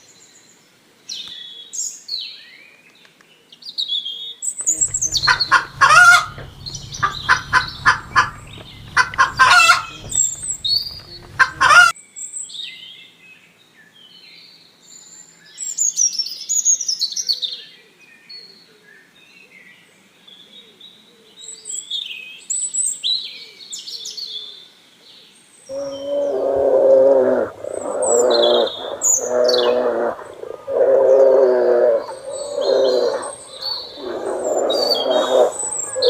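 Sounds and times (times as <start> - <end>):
birds chirping and trilling: 4.6 - 11.9, 25.7 - 36.0
animal long pitched calls: 4.7 - 11.9, 25.7 - 36.0.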